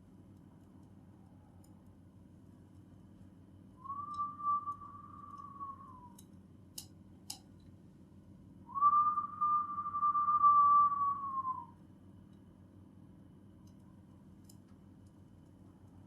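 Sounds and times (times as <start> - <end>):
long whistled notes: 3.8 - 6.2, 8.7 - 11.7.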